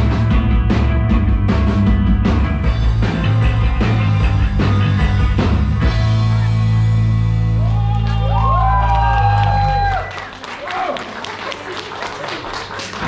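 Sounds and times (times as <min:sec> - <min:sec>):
electric guitars: 0:00.0 - 0:10.1
bass guitar: 0:00.0 - 0:10.2
drums: 0:00.0 - 0:10.3.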